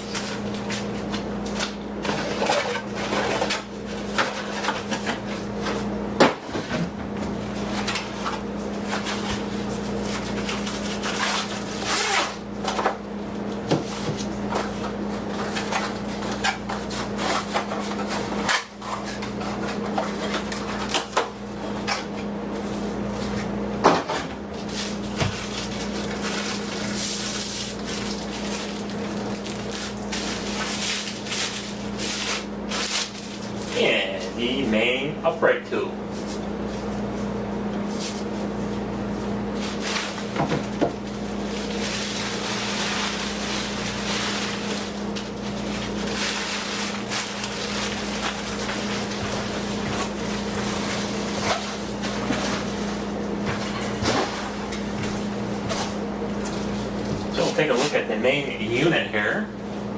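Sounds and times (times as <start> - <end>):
steady low hum: 0.0 - 59.9
packaging rustling: 24.6 - 33.8, 39.6 - 53.0.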